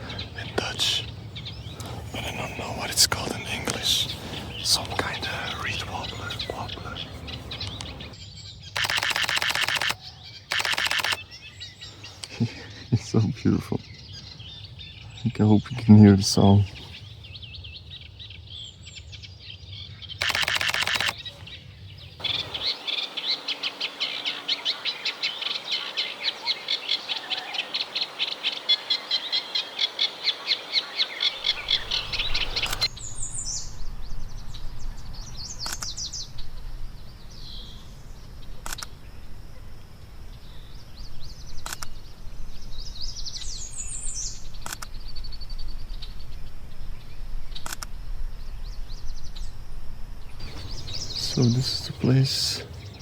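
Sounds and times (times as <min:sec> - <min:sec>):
short bird calls: 0:00.0 - 0:15.3, 0:20.1 - 0:33.6, 0:50.4 - 0:53.0
reed warbler chattering song: 0:00.0 - 0:39.5, 0:40.2 - 0:49.6, 0:50.3 - 0:53.0
sharp clicks: 0:07.5 - 0:08.1, 0:08.8 - 0:11.2, 0:20.2 - 0:21.2, 0:31.4 - 0:32.9.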